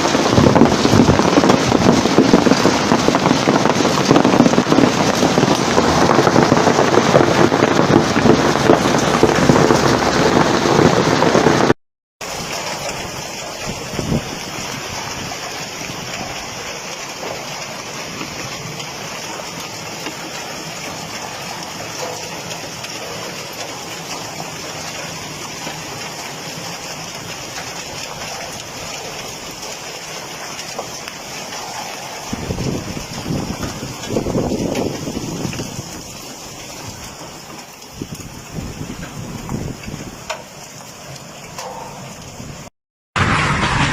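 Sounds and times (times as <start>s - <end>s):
deep rumbling: 0.0s - 11.7s, 43.2s - 43.9s
hail and heavy rain: 0.0s - 43.9s.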